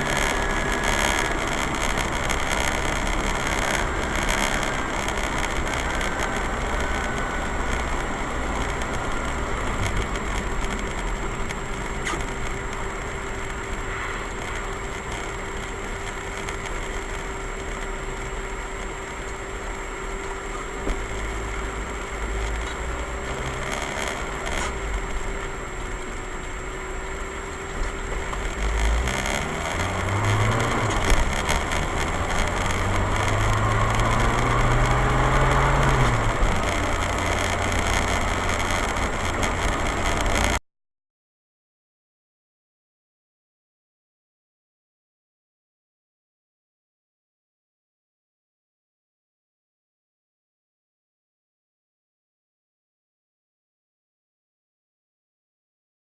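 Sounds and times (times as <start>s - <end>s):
car engine: 0.0s - 40.6s
road noise: 0.0s - 40.6s.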